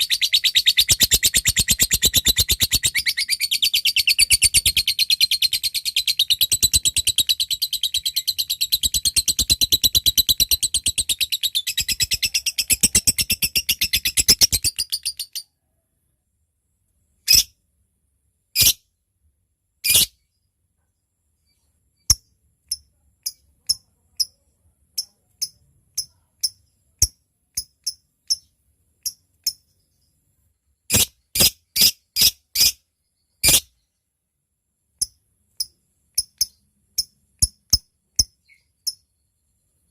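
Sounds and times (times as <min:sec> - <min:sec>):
lovebird chattering trill: 0:00.0 - 0:15.4
sharp high ticking chirps: 0:00.0 - 0:15.4, 0:25.0 - 0:29.6, 0:35.0 - 0:39.1.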